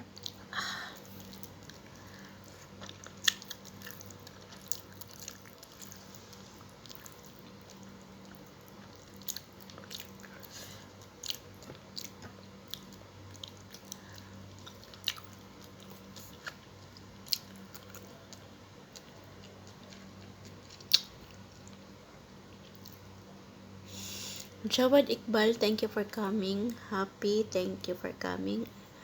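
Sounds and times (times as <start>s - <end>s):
faint steady hum: 0.0s - 29.0s
chewing with mouth clicks: 0.1s - 21.8s, 22.5s - 23.1s.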